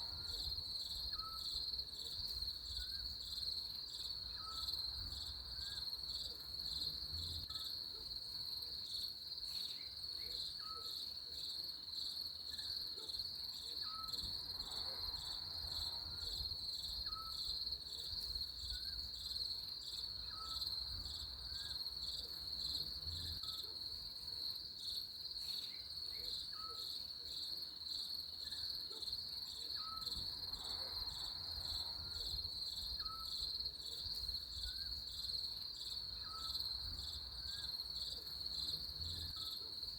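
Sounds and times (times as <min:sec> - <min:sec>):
crickets trilling: 0:29.6 - 0:39.9.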